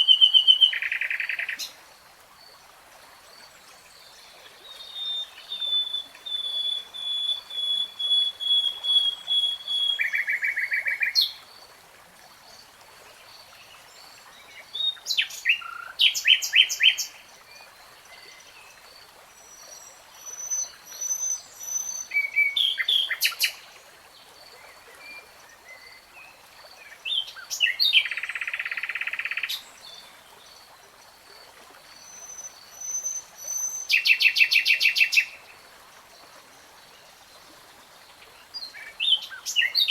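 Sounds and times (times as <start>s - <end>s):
songbird singing: 0.0s - 1.8s, 3.8s - 11.4s, 13.7s - 18.8s, 19.4s - 23.7s, 24.6s - 30.5s, 32.0s - 35.5s, 38.0s - 39.9s.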